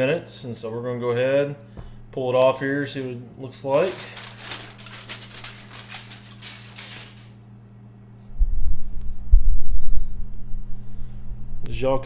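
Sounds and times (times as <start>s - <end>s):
faint steady hum: 0.0s - 12.0s
crinkling foil rustle: 3.6s - 7.4s
low rumble on microphone: 8.3s - 11.8s.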